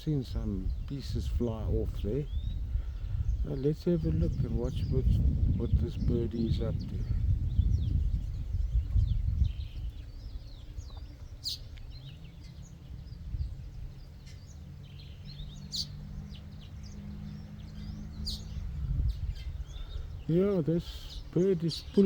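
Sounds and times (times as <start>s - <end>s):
garden birds chirping: 0.0s - 22.0s
low rumble: 16.2s - 20.3s.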